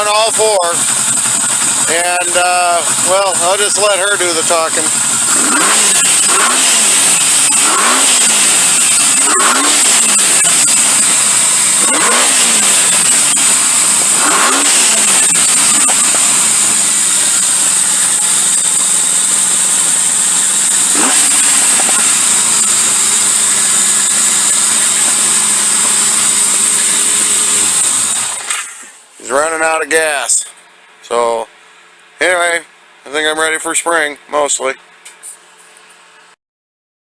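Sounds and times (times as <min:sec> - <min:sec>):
motorcycle engine revving and idling: 0:00.0 - 0:36.3.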